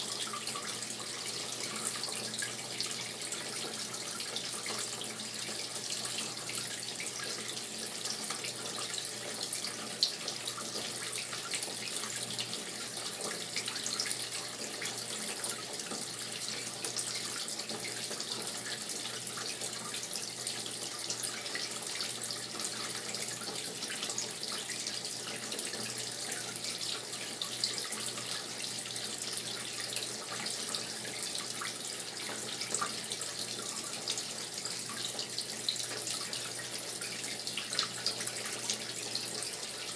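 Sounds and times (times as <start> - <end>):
water running into washing machine: 0.0 - 39.9.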